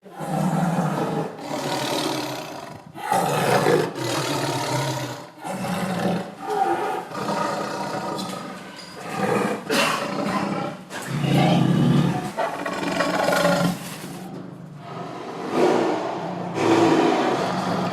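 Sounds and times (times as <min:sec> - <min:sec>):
tiger roaring: 0:00.0 - 0:17.9.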